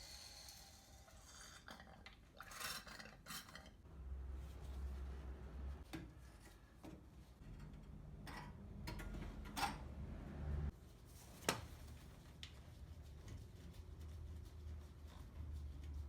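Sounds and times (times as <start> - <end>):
low steady hum: 3.9 - 5.8.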